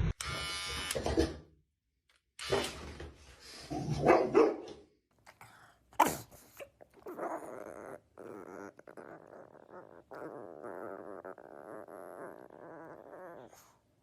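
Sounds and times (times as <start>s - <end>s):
dog growling: 5.4s - 14.0s.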